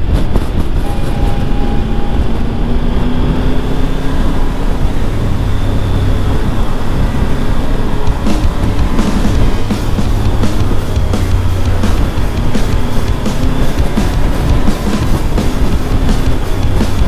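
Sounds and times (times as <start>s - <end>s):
motorcycle engine running: 0.0s - 17.0s
wind rushing on microphone: 0.0s - 17.0s.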